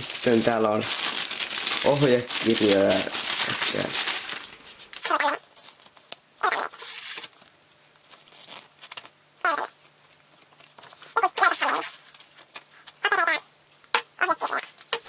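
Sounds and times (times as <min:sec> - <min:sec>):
paper and packaging crinkling: 0:00.0 - 0:09.2, 0:09.8 - 0:15.0.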